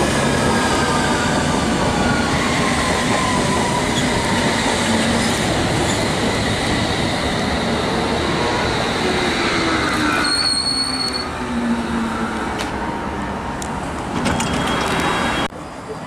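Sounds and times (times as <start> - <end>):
train wheels rumbling on rail: 0.0 - 13.0
high-pitched squeal: 8.1 - 12.2.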